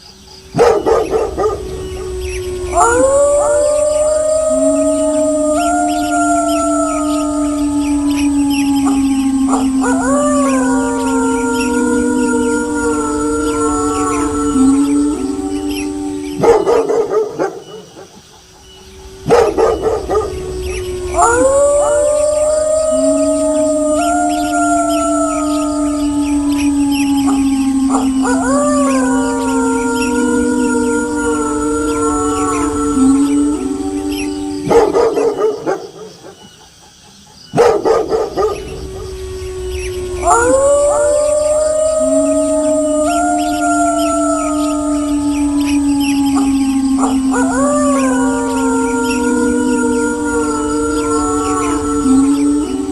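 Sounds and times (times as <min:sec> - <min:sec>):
wolves howling: 0:00.0 - 0:36.8, 0:37.5 - 0:52.9
dog barking: 0:00.5 - 0:01.6, 0:19.2 - 0:20.2, 0:37.5 - 0:38.6.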